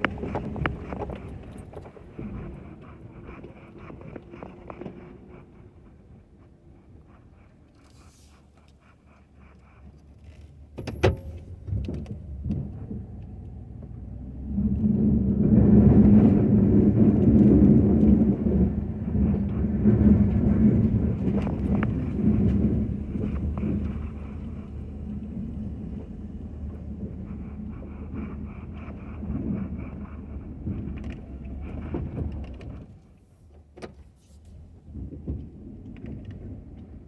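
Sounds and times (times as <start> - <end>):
pickup truck engine running: 0.0 - 4.7, 10.8 - 33.0.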